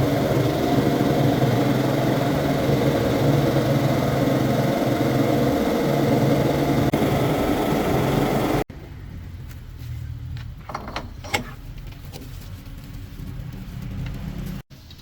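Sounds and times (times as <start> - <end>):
vehicle engine running: 0.0 - 9.5
low hum: 0.0 - 11.1.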